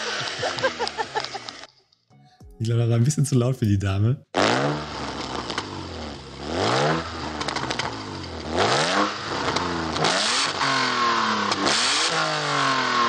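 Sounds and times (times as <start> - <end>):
car engine revving: 0.0 - 1.7, 4.3 - 13.0.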